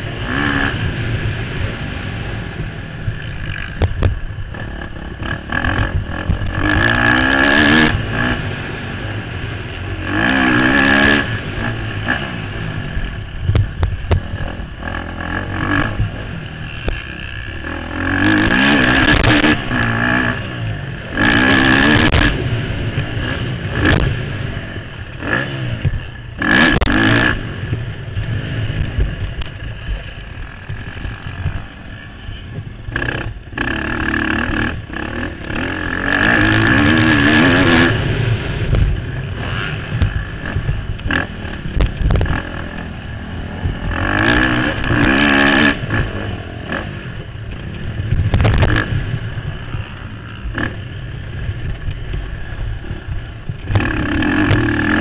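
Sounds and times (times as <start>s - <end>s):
motorcycle engine revving: 0.0s - 55.0s
sharp thumps: 13.4s - 14.8s, 22.0s - 24.2s, 39.9s - 42.5s, 47.2s - 50.8s.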